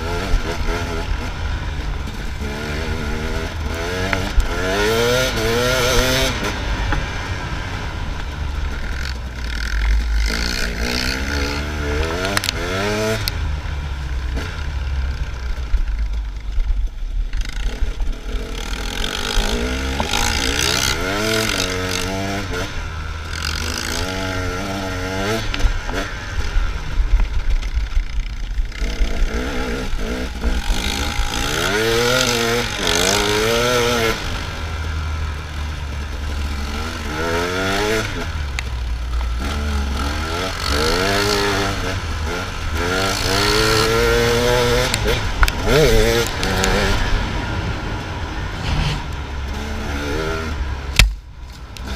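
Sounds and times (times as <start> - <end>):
dirt bike engine revving: 0.0 - 16.4, 17.3 - 51.2
low rumble: 46.7 - 49.9.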